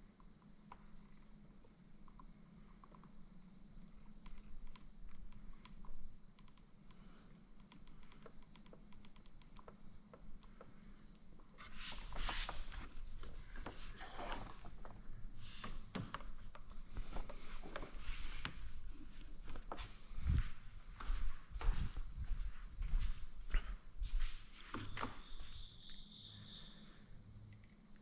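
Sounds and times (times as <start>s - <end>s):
rustling and scraping: 11.5s - 20.6s.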